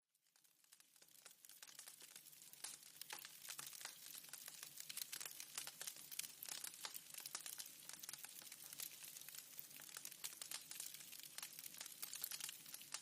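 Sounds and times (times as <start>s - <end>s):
wood fire crackling: 0.2s - 13.0s.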